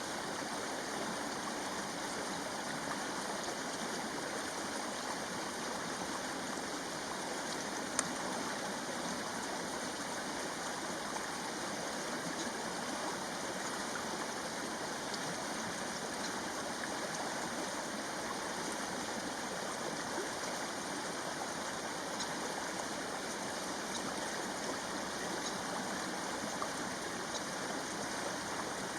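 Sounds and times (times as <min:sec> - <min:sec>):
stream rushing: 0:00.0 - 0:28.9.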